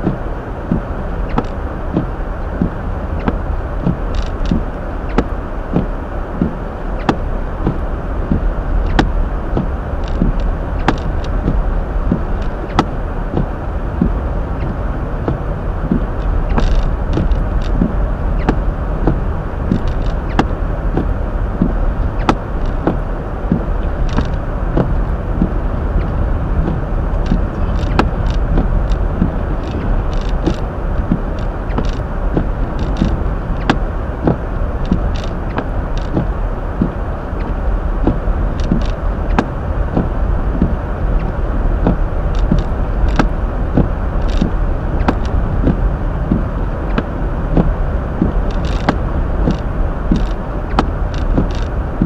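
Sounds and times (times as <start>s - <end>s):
tyre and road noise: 0.0s - 52.0s
sharp clicks and ticks: 10.0s - 11.6s, 15.9s - 20.5s, 21.6s - 24.9s, 26.0s - 36.9s, 38.0s - 39.5s, 40.6s - 51.7s.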